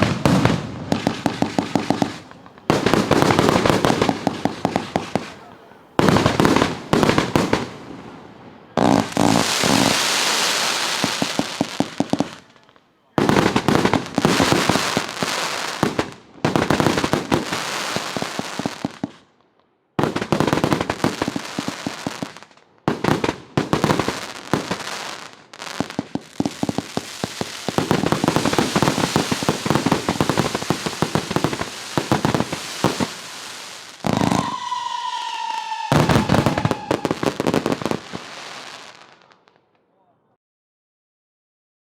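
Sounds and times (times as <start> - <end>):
fireworks crackling bursts: 0.0 - 39.7
falling whistling tone: 34.2 - 37.2.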